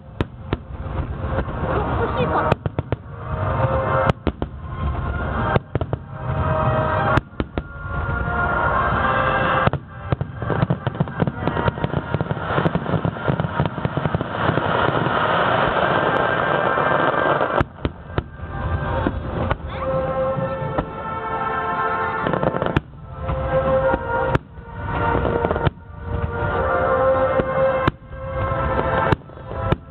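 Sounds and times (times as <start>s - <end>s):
firework bangs: 0.0s - 29.9s
firework crackle: 0.0s - 29.9s
music: 2.0s - 12.5s, 17.8s - 29.9s.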